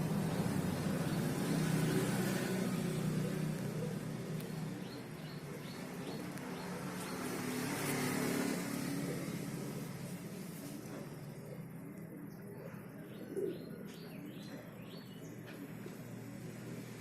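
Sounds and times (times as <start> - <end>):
vehicle engine running: 0.0 - 11.9.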